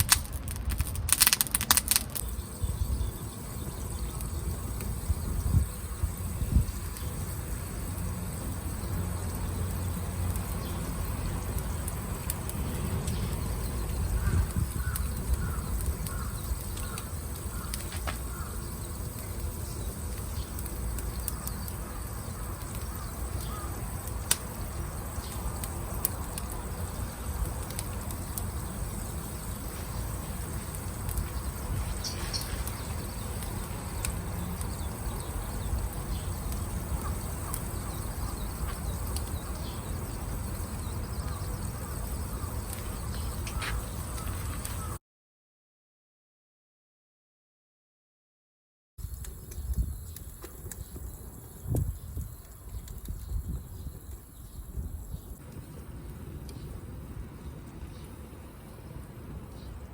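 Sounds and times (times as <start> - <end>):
wood fire crackling: 0.0 - 45.0, 49.0 - 54.4, 55.0 - 59.9
high bird call: 14.0 - 19.1, 21.2 - 24.0, 41.0 - 45.0
crow calling: 14.1 - 18.8, 21.3 - 24.0, 36.9 - 38.8, 41.2 - 45.0.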